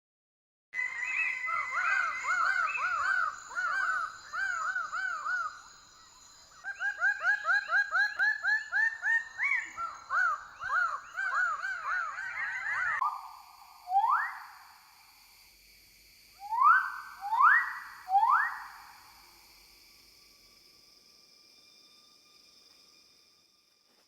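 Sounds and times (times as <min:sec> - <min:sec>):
bird calling ringing notes: 0:16.4 - 0:19.0.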